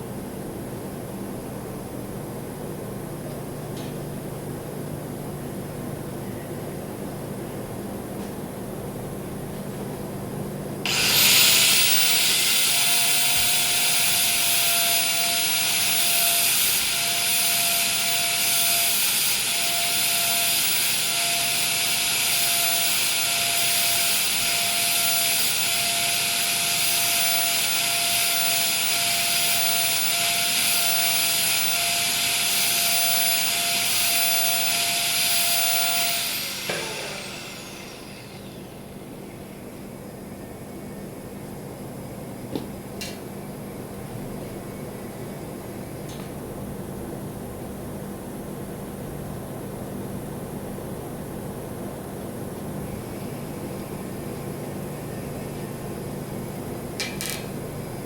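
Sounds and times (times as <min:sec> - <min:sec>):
welding arc hissing: 0:10.9 - 0:38.5.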